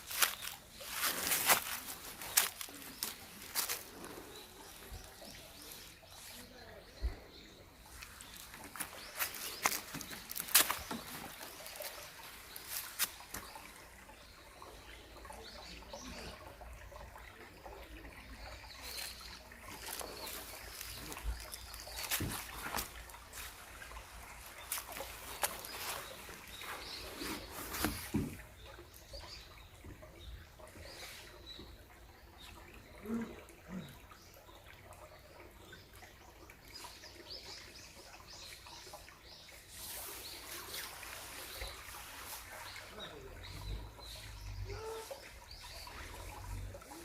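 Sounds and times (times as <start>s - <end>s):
rustles: 0.0s - 7.2s, 18.9s - 28.5s
water trickling: 0.0s - 47.0s.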